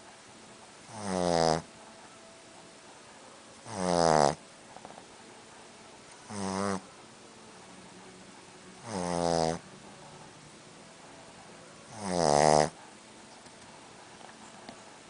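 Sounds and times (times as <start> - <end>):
dog snoring: 0.8 - 1.7, 3.6 - 5.0, 6.2 - 6.9, 8.8 - 9.7, 11.9 - 12.8.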